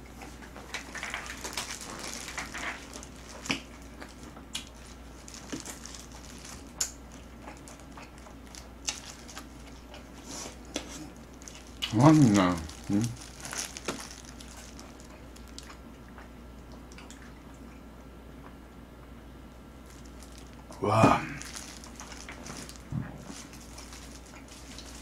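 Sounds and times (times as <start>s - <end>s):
wet chewing with mouth clicks: 0.0s - 12.0s, 13.1s - 18.6s, 23.2s - 25.0s.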